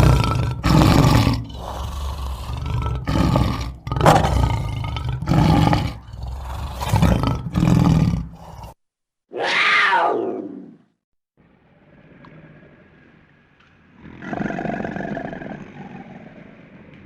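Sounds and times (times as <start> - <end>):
large animal roaring: 0.0 - 8.8, 13.9 - 16.8
animal call falling in pitch: 9.3 - 10.7.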